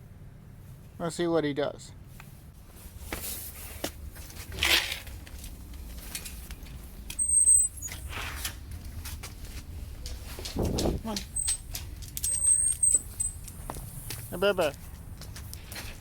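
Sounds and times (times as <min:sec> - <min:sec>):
rustling and light knocks: 0:02.2 - 0:07.2, 0:07.8 - 0:16.0
high toy squeak: 0:12.3 - 0:13.1.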